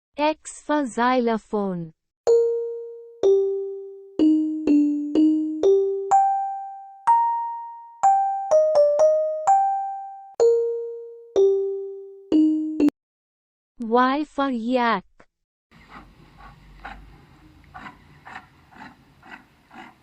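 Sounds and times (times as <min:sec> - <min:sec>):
xylophone playing a simple tune: 0:02.3 - 0:13.0.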